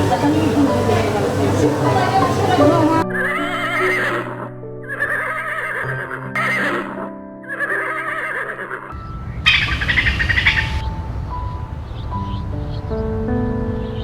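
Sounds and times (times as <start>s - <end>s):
background music with held notes: 0.0s - 8.1s, 8.8s - 14.0s
horse whinnying: 3.1s - 10.4s.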